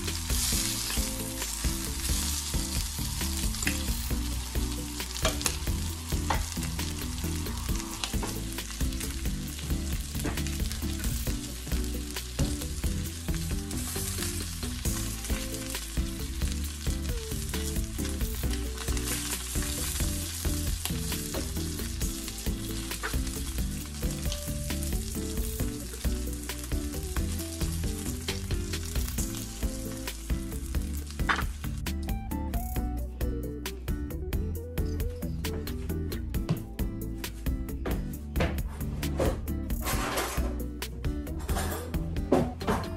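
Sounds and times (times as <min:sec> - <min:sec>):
food sizzling in frying pan: 0:00.0 - 0:31.9.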